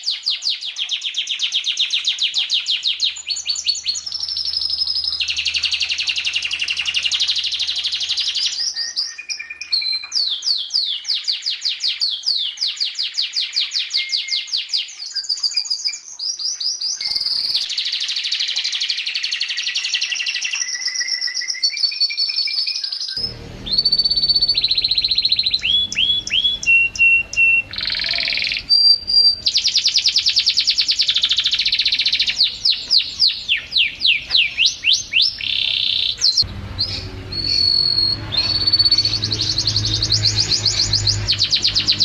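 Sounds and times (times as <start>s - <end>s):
canary singing trills: 0.0s - 42.0s
low background rumble: 23.2s - 29.6s.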